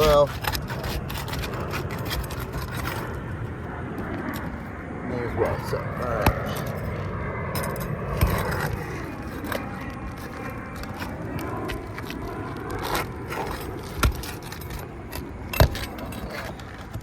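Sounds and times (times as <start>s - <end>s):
nail tearing through shingle: 0.0s - 3.3s, 7.6s - 17.0s
tool scraping under shingles: 0.0s - 17.0s.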